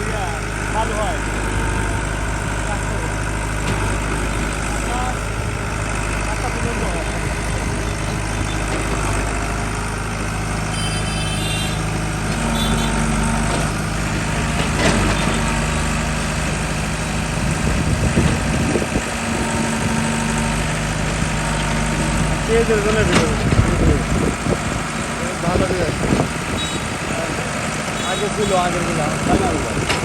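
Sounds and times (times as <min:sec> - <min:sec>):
heavy diesel engine running: 0:00.0 - 0:30.0
knocks and clanks: 0:03.6 - 0:04.2, 0:12.2 - 0:16.6, 0:18.1 - 0:24.7, 0:29.4 - 0:30.0.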